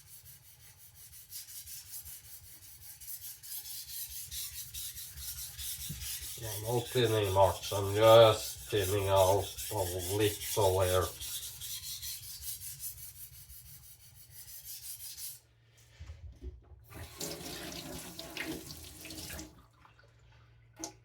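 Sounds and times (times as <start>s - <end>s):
water running: 16.9s - 21.0s.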